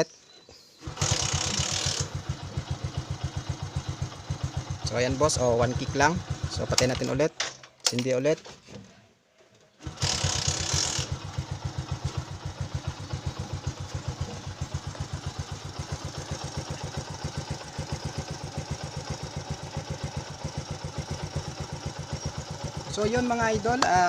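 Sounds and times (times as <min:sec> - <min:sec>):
motorcycle engine idling: 0:00.8 - 0:07.1, 0:09.9 - 0:24.0.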